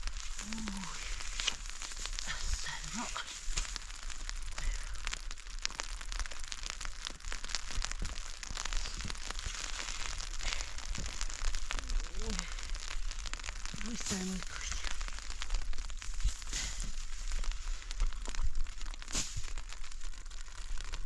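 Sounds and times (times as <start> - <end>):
crackling and clicking: 0.0 - 21.0.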